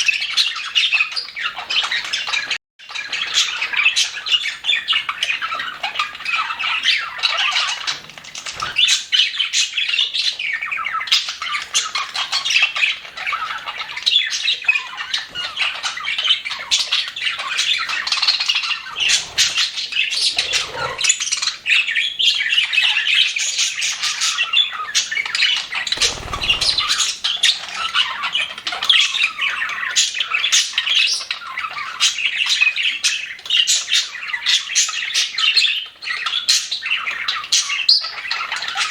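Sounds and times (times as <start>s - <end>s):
budgerigars chattering and squawking: 15.2s - 22.3s, 26.0s - 27.2s
low thumps or flutters: 25.9s - 27.5s.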